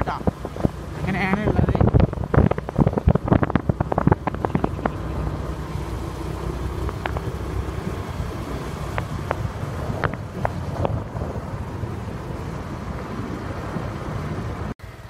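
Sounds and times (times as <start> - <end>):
sharp clicks and rattles: 0.0 - 5.8, 6.7 - 7.5, 8.9 - 11.5
vehicle engine and road rumble: 0.0 - 15.0.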